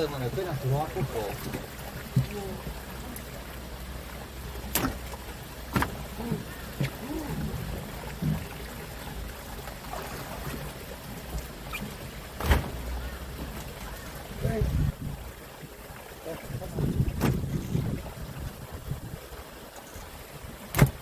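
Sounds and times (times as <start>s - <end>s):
boat engine humming: 0.0s - 21.0s
sharp knocks: 20.7s - 21.0s.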